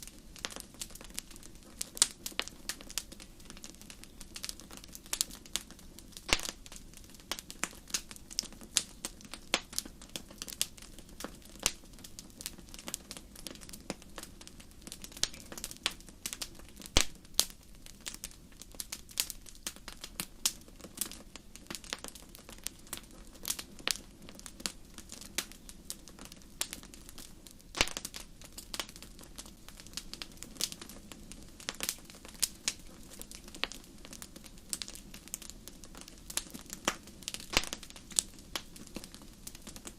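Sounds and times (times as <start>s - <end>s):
campfire crackling and popping: 0.0s - 39.9s
low background noise: 0.0s - 39.9s.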